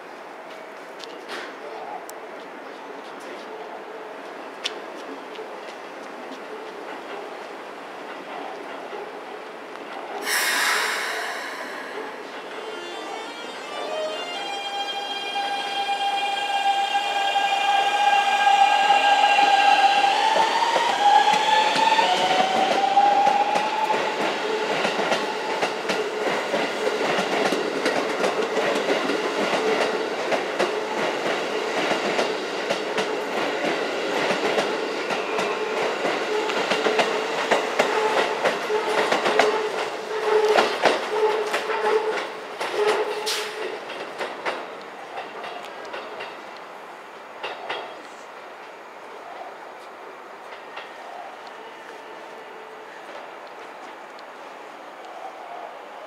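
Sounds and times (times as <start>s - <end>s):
train inverter musical tones: 10.2s - 23.6s.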